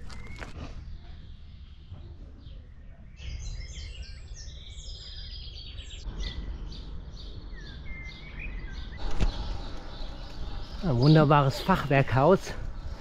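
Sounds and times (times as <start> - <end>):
birds chirping: 0.0 - 13.0
steady low rumble: 6.0 - 13.0.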